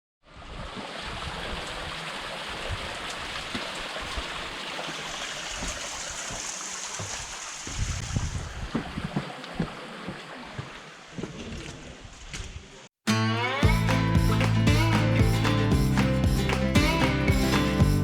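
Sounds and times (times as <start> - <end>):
wind buffeting microphone: 7.1 - 9.7
rain falling: 13.6 - 18.0.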